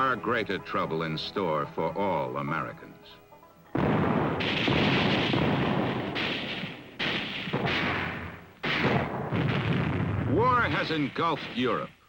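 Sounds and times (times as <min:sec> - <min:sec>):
artillery explosions: 0:03.7 - 0:12.0.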